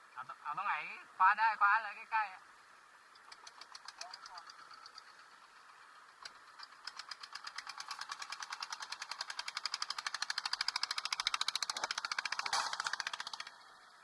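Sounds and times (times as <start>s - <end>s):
small engine knocking: 3.1s - 14.0s.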